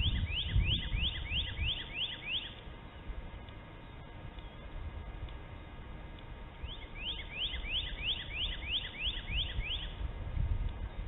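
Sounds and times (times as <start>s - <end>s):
bird whistling rising notes: 0.0s - 2.6s, 6.6s - 10.0s.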